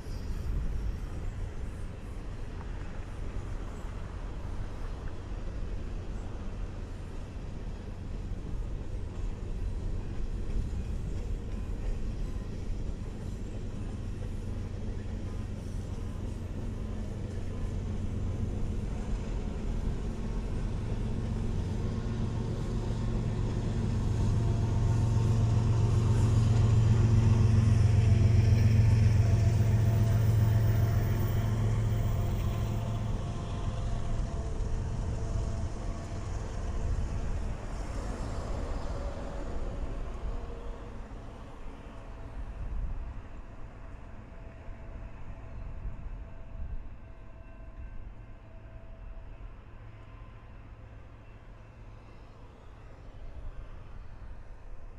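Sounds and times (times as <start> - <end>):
heavy engine drone passing by: 14.6 - 42.6.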